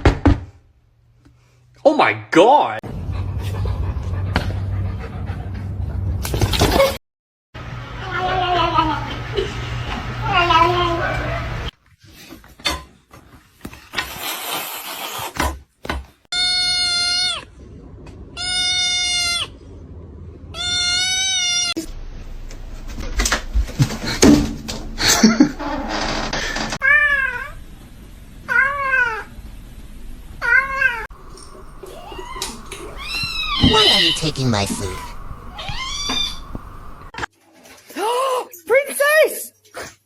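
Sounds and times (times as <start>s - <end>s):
cat meowing: 30.4s - 37.1s.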